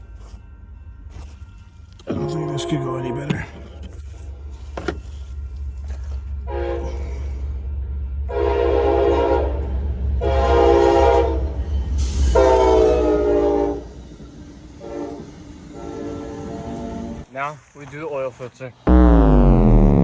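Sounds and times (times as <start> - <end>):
train horn blasts: 2.1 - 3.5, 6.4 - 7.2, 8.3 - 11.6, 12.3 - 13.9, 14.8 - 17.2.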